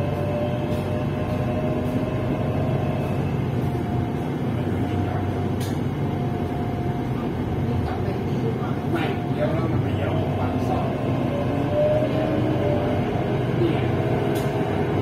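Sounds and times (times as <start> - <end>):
electric train rumble and hiss: 0.0 - 15.0.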